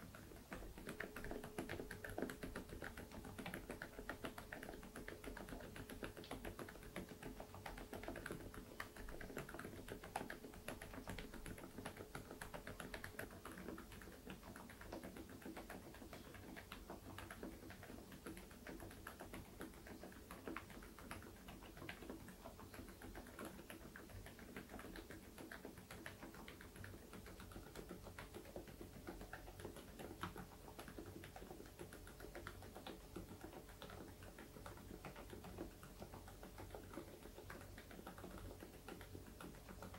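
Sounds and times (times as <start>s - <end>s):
quiet keyboard typing: 0.0s - 39.9s.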